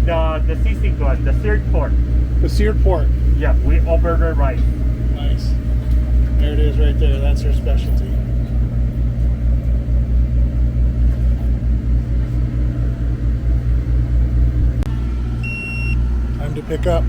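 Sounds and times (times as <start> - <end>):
generator engine rumbling: 0.0 - 17.0
high electronic beep: 15.4 - 16.0.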